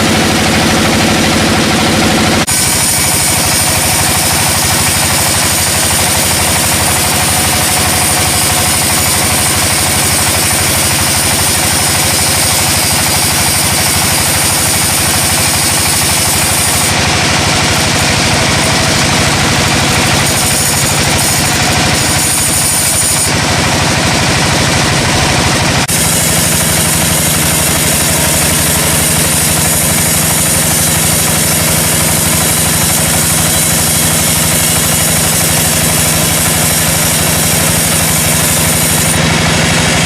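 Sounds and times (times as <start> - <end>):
sawmill engine running: 0.0 - 40.0.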